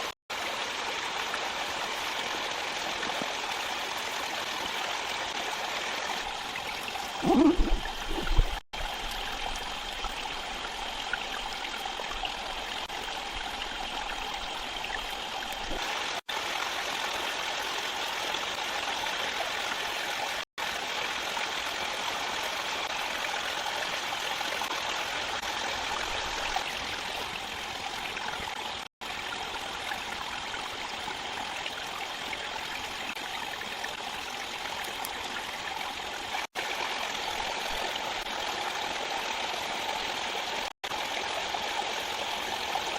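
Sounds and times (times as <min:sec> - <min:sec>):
flowing stream water: 0:00.0 - 0:42.9.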